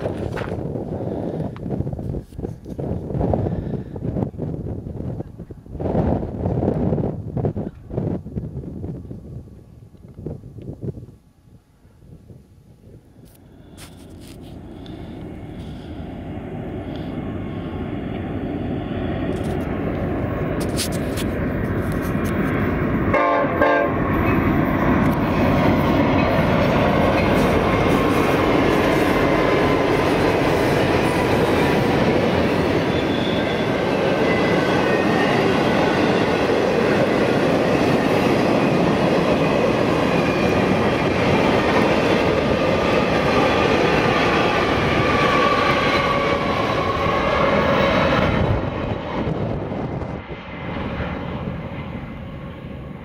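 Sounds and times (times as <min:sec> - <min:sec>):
diesel locomotive passing: 0:00.0 - 0:53.0
freight train wheels clattering: 0:24.0 - 0:48.3.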